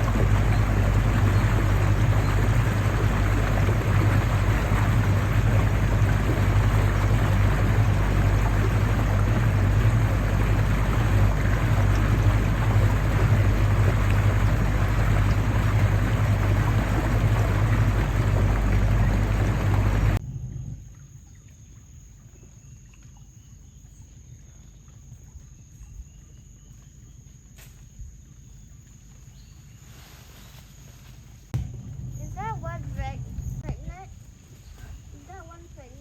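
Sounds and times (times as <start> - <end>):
rushing water: 0.0 - 20.2, 31.6 - 36.0
boat motor humming: 0.0 - 21.3, 31.6 - 36.0
wind: 0.0 - 36.0.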